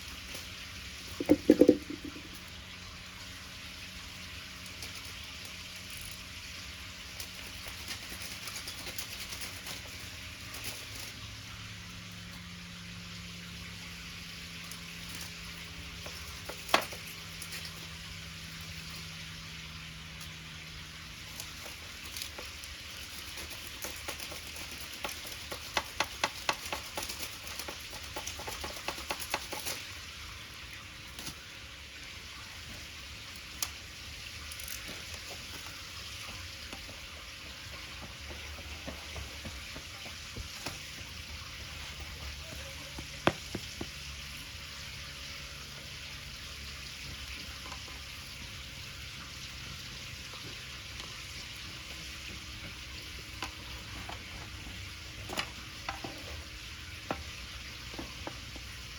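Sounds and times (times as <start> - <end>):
wood fire popping and clicking: 1.2 - 2.5, 21.2 - 30.2.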